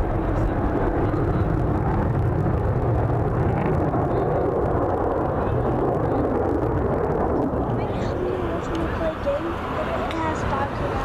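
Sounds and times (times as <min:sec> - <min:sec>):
airplane engine drone: 0:00.0 - 0:11.0.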